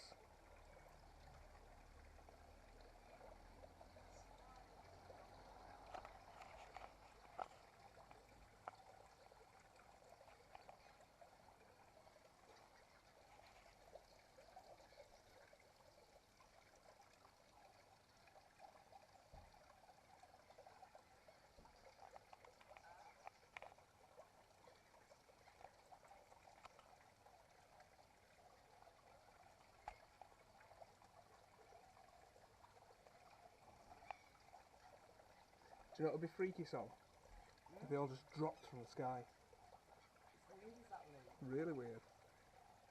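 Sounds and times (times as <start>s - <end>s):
soft ticks: 10.2s - 11.1s, 26.6s - 26.9s, 34.0s - 34.4s.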